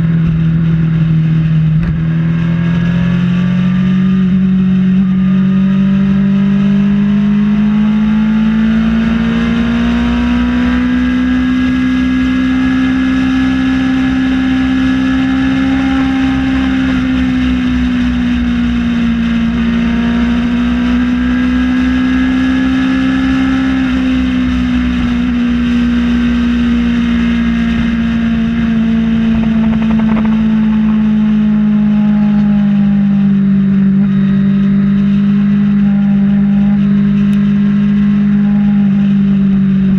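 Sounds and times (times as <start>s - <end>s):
motorcycle engine cruising: 0.0s - 39.9s
wind rush: 27.5s - 32.2s.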